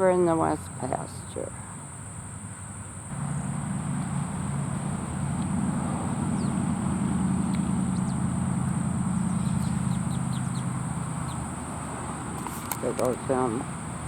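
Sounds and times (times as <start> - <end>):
vehicle engine running: 3.0 - 14.0.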